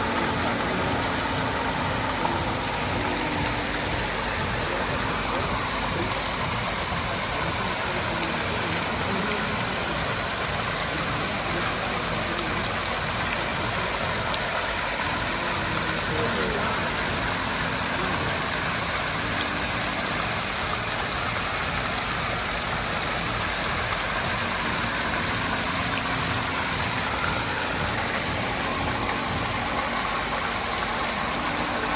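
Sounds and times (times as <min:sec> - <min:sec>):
murmur of voices: 0:00.0 - 0:21.6
water fountain splashing: 0:00.0 - 0:31.9.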